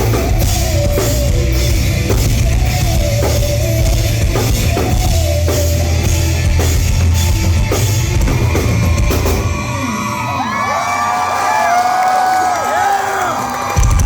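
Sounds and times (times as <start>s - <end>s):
pounding drum kit: 0.0s - 10.3s, 13.7s - 14.0s
heavy bass: 0.0s - 10.5s
rock band playing loudly: 0.0s - 10.9s
crowd cheering and whooping: 0.1s - 14.0s.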